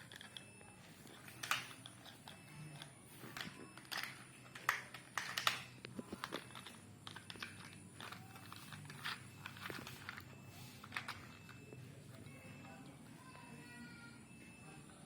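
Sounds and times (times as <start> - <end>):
plastic toy trucks clicking: 0.0 - 0.5, 1.1 - 11.7.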